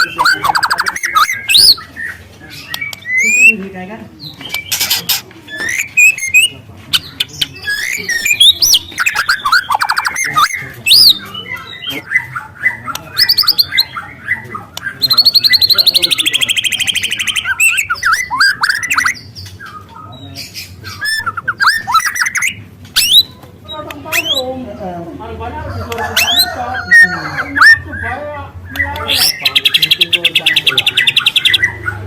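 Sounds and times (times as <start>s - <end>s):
bird singing whistles and trills: 0.0s - 1.9s, 2.6s - 3.6s, 5.5s - 6.6s, 7.6s - 19.9s, 20.8s - 23.4s, 24.1s - 24.5s.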